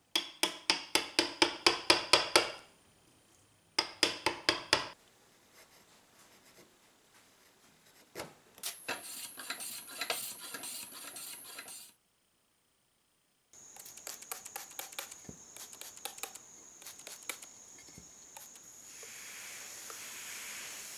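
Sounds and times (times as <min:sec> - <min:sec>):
hand tool tapping wood: 0:00.2 - 0:02.6, 0:03.8 - 0:05.0, 0:13.7 - 0:18.6
scraping on wood: 0:08.7 - 0:11.9.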